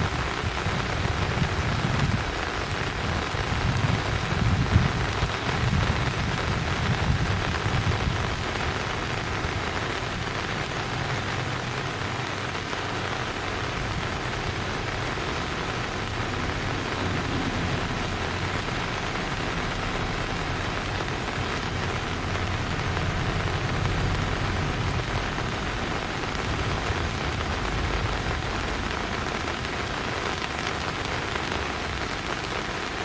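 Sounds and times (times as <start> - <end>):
rushing hiss of water: 0.0 - 33.0
low rumble: 13.9 - 29.8.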